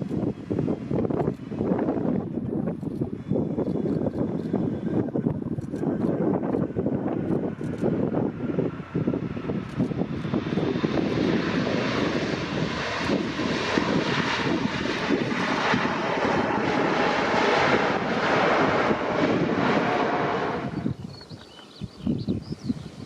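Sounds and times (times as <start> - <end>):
jet airliner engines roaring: 0.0 - 23.0.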